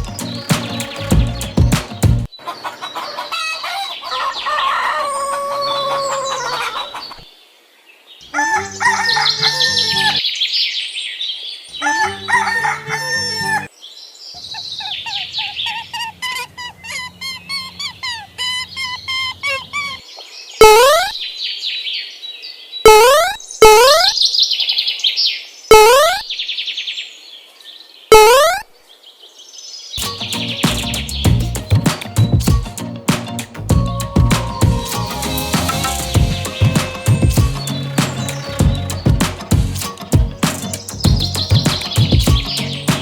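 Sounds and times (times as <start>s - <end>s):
patterned electronic sounds: 0.0s - 2.3s, 30.0s - 43.0s
chickens clucking: 0.0s - 7.3s, 30.0s - 43.0s
rooster crowing: 2.4s - 7.2s, 8.3s - 10.2s, 11.8s - 13.7s.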